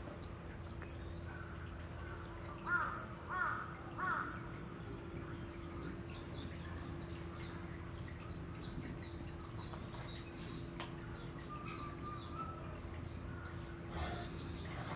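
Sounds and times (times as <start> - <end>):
small birds chirping: 4.8 - 14.9.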